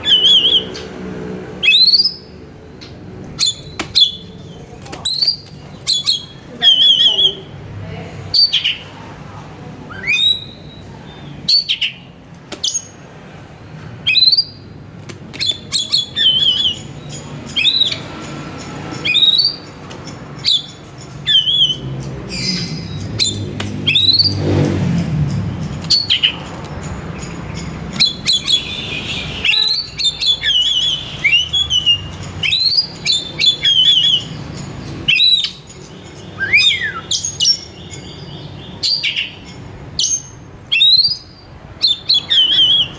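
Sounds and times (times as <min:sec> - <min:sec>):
songbird whistling and trilling: 0:00.0 - 0:00.9, 0:01.6 - 0:07.6, 0:09.9 - 0:10.9, 0:14.0 - 0:14.6, 0:15.4 - 0:18.2, 0:19.0 - 0:19.8, 0:20.4 - 0:24.5, 0:27.5 - 0:42.9.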